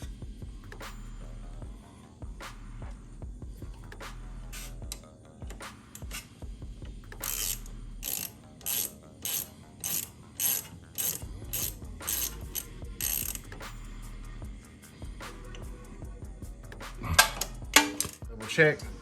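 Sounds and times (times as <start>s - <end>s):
ratchet wrench ratcheting: 3.7s - 6.4s, 7.0s - 13.9s, 17.1s - 18.2s.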